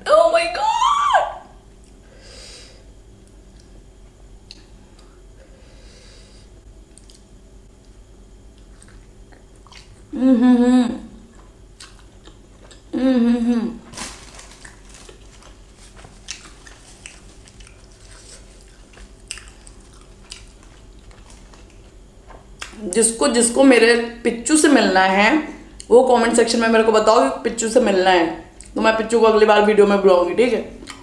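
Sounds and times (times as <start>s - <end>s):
wet chewing with mouth clicks: 6.9s - 10.1s, 11.2s - 12.9s, 14.6s - 23.0s.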